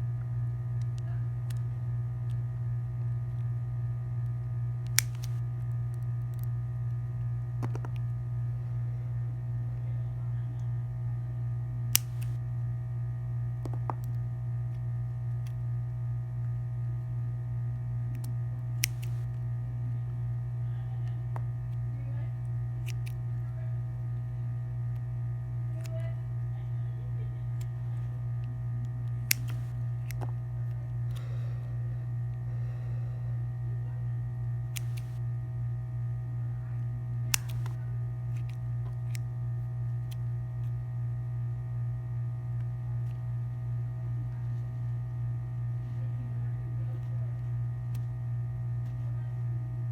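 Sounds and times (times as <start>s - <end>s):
low electrical hum: 0.0s - 49.9s
sharp clicks: 4.8s - 5.4s, 11.9s - 12.4s, 18.1s - 19.3s, 22.8s - 23.2s, 28.4s - 30.3s, 34.7s - 35.2s, 37.3s - 37.8s.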